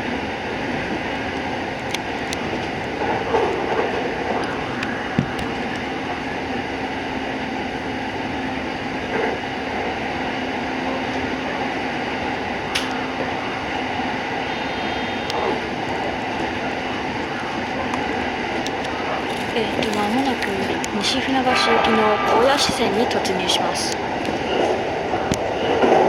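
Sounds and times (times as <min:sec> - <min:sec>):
train wheels rumbling on rail: 0:00.0 - 0:26.0
faint hum: 0:10.6 - 0:25.9.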